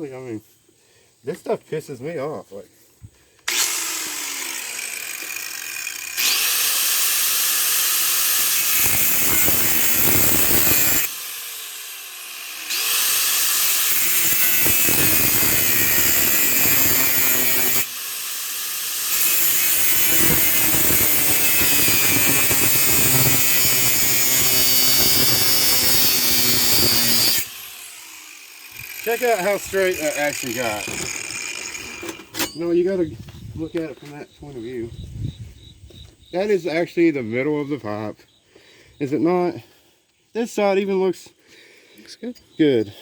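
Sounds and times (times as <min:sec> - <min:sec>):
angle grinder cutting steel pipe: 0:03.5 - 0:32.8.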